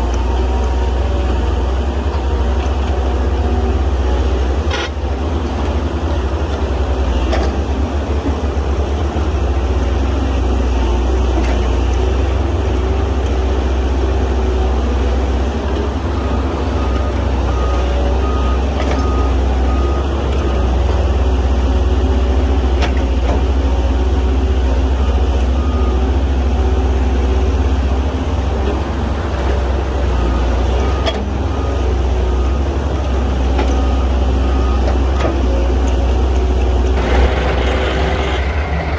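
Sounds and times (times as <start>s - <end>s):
heavy diesel excavator engine: 0.0s - 38.9s
reversing alarm beeping: 4.7s - 5.0s, 37.0s - 38.9s.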